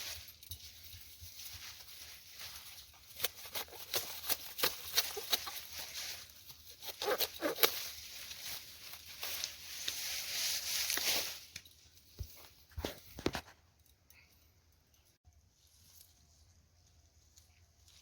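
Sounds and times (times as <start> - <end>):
stalks and leaves rustling: 0.0 - 13.5, 15.3 - 18.0
grass being cut by hand: 3.0 - 10.0.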